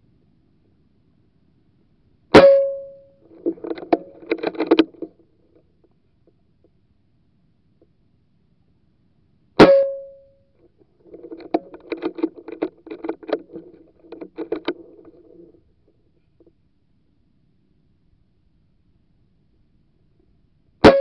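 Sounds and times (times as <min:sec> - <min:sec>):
ringing tone: 0:02.4 - 0:03.2, 0:09.6 - 0:10.2.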